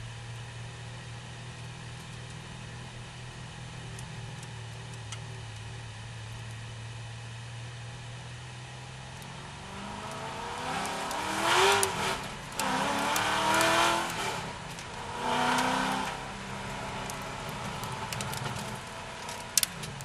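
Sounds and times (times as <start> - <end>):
car engine accelerating hard: 8.4 - 20.0.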